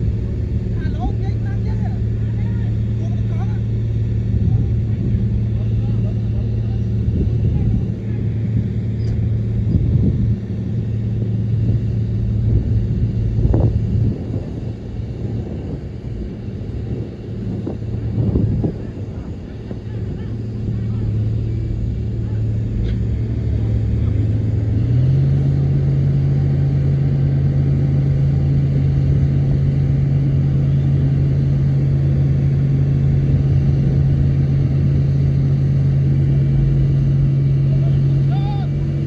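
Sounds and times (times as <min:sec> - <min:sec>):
heavy low thumps: 0:00.0 - 0:38.3
bulldozer diesel engine running: 0:00.0 - 0:39.0.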